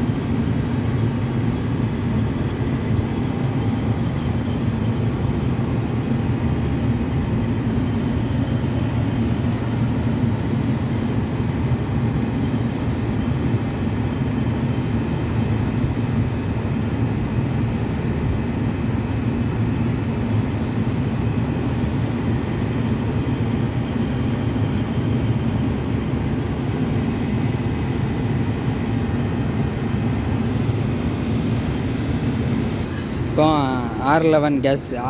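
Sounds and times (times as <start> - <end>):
faint constant hum: 0.0 - 35.0
low mechanical rumble: 24.8 - 35.0.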